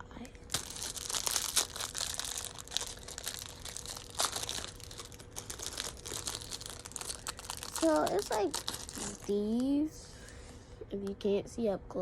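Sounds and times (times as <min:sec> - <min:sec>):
plastic bag crinkling: 0:00.4 - 0:09.8.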